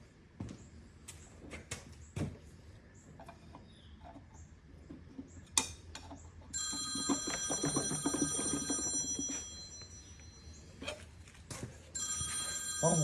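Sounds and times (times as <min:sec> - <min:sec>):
phone ringing: 0:06.5 - 0:11.0, 0:11.9 - 0:13.0.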